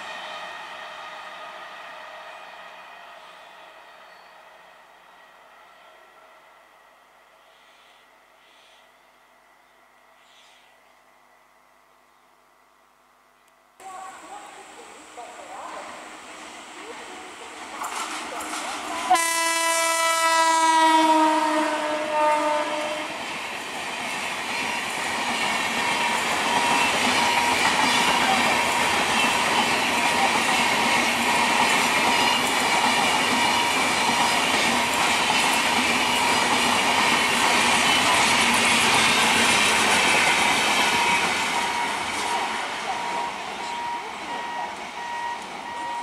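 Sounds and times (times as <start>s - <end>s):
train wheels rumbling on rail: 0.0s - 6.4s, 13.8s - 46.0s
locomotive horn blast: 19.0s - 23.2s.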